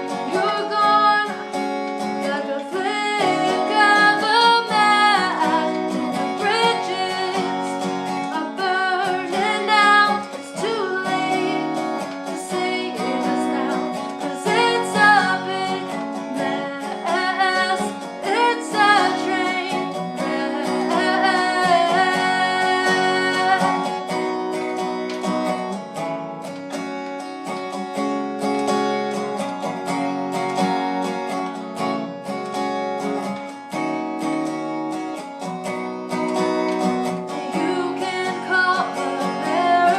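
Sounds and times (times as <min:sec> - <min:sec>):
person singing: 0:00.0 - 0:24.4, 0:37.3 - 0:39.9
strummed acoustic guitar: 0:00.0 - 0:39.9.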